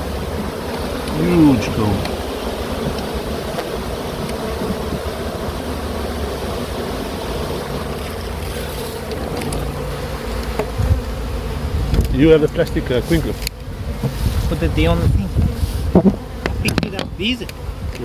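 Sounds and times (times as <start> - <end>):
bees buzzing in a swarm: 0.0 - 18.0
wind rumble on microphone: 10.8 - 18.0.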